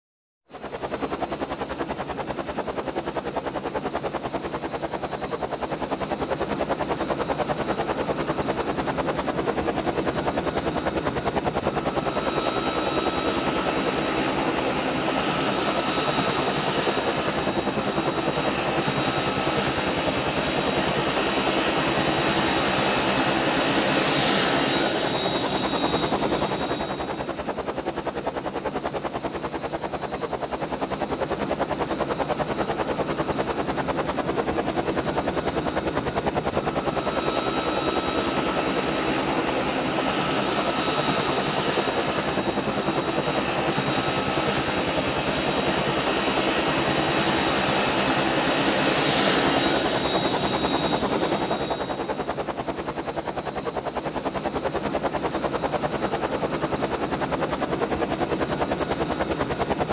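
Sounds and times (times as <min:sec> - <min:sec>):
helicopter rotor beat: 0:00.5 - 0:59.9
high turbine whine: 0:08.0 - 0:27.9, 0:33.0 - 0:53.1.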